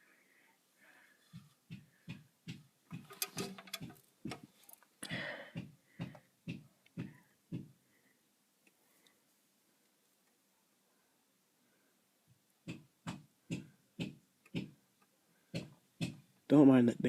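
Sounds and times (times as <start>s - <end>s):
regular banging knocks: 1.3s - 4.6s, 5.2s - 7.8s, 12.6s - 16.5s.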